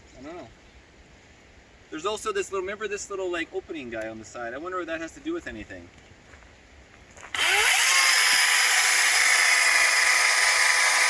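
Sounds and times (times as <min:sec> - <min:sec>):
electric chainsaw whining: 0:07.3 - 0:11.0.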